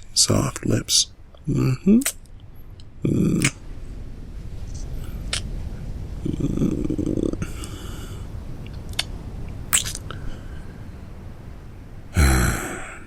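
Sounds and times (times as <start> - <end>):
low hum: 0.0 - 13.0
ocean waves: 2.2 - 13.0
kissing and lip smacks: 9.8 - 10.1.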